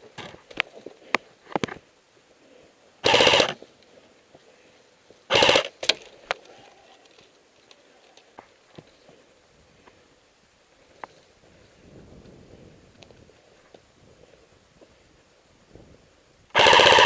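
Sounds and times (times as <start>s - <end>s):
sharp clicks and knocks: 0.1s - 1.8s
airsoft gun full-auto bursts: 3.0s - 3.6s, 5.3s - 6.0s, 16.5s - 17.0s.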